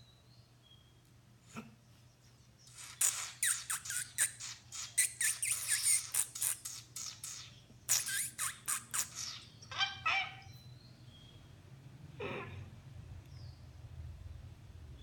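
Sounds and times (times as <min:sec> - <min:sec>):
low buzzy bird calls: 0:00.0 - 0:11.5
bird squawking: 0:02.8 - 0:10.6.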